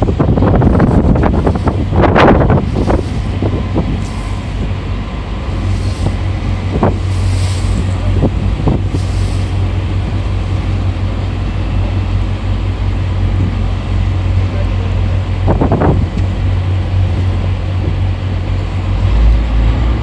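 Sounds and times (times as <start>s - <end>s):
boat engine drone: 0.0s - 20.0s
wind buffeting microphone: 0.0s - 20.0s.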